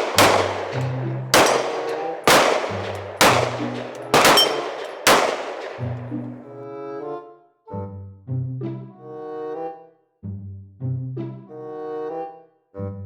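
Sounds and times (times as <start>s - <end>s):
gunshots with echoing tail: 0.0s - 6.5s
background music with low notes: 5.5s - 13.0s.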